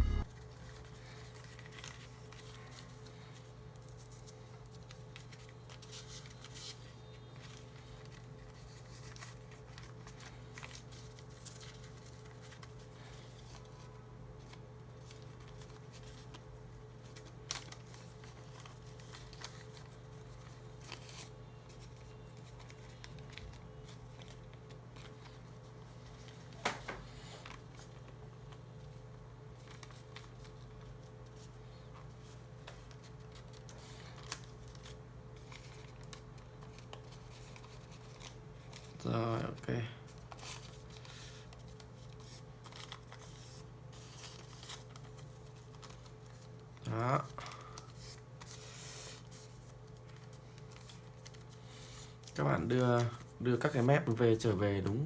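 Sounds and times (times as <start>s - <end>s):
steady low hum: 0.0s - 0.3s
banknote rustling and creasing: 40.1s - 54.1s.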